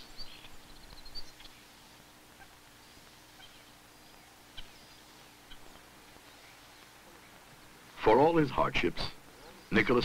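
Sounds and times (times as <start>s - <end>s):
bird chirps: 0.0s - 7.4s
low steady hum: 0.0s - 10.0s.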